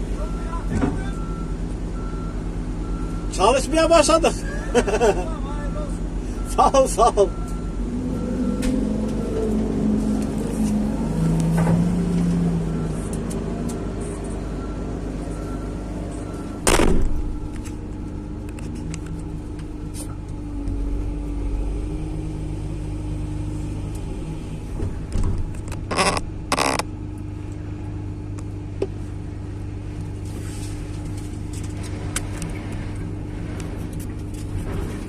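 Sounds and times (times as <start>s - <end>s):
excavator engine and hydraulics: 0.0s - 35.0s.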